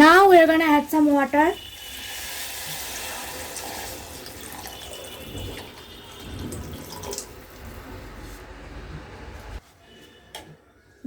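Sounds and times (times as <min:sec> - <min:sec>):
water pouring into hot pan: 0:00.5 - 0:08.2.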